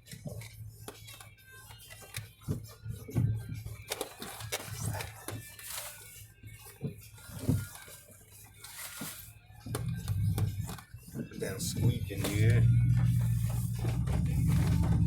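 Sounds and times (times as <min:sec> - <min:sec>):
vehicle body knocks and creaks: 0:09.7 - 0:15.0.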